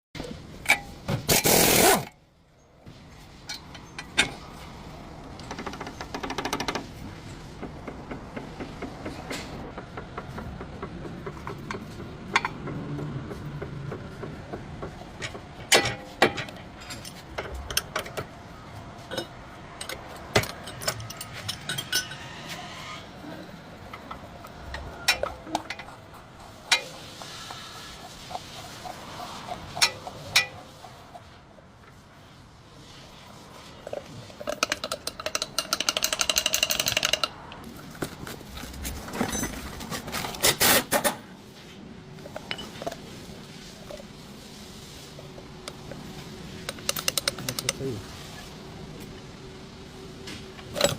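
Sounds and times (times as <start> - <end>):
hand tools clicking and knocking on metal: 3.4 - 4.6, 5.3 - 22.4, 23.8 - 31.3, 33.9 - 41.2, 45.3 - 48.0, 50.6 - 50.9
scattered knocks: 7.6 - 16.4
metal tools clinking: 19.1 - 22.4, 39.1 - 40.6.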